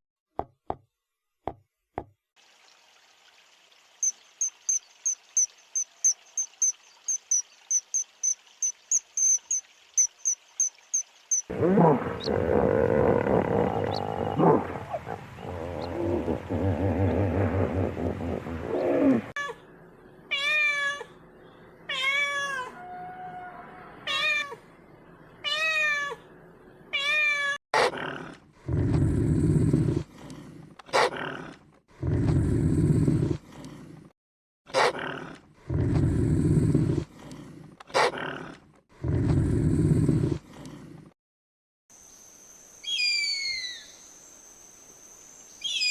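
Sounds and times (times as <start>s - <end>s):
animal low growl: 11.5s - 19.4s, 27.8s - 34.1s, 34.8s - 41.2s
low rough animal calls: 11.5s - 19.4s.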